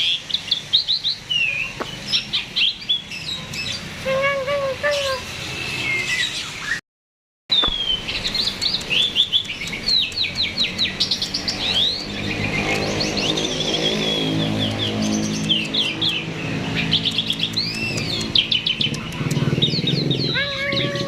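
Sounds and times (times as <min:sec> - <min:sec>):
starling singing: 0:07.5 - 0:21.0.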